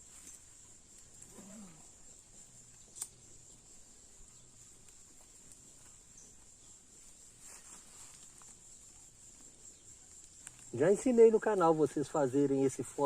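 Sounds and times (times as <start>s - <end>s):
high-pitched insect chirr: 0.0s - 13.0s
faint ticks: 0.2s - 3.6s, 4.2s - 6.7s, 8.1s - 10.8s.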